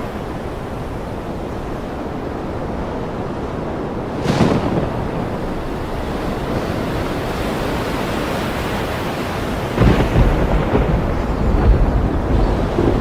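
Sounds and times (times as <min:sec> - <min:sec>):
ocean surf rushing: 0:00.0 - 0:13.0
wave crashing: 0:03.8 - 0:13.0
thunder rumbling: 0:03.9 - 0:08.0, 0:09.2 - 0:13.0.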